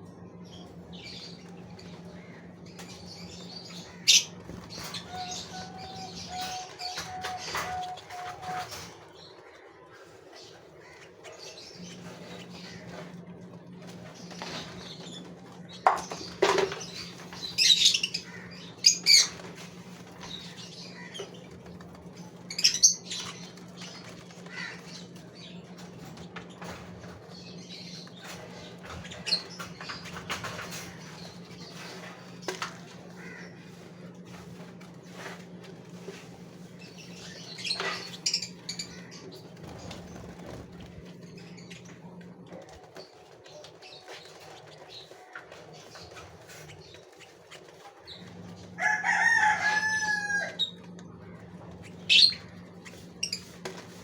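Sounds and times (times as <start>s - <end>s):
steady low hum: 0.0s - 49.7s
finches fluttering wings: 34.3s - 49.3s.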